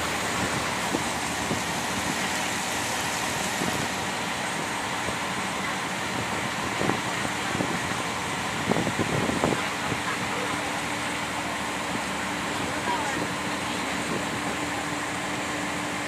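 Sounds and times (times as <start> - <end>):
boat engine running: 0.0 - 16.0
water rushing: 0.0 - 16.0
wind noise: 6.1 - 10.0.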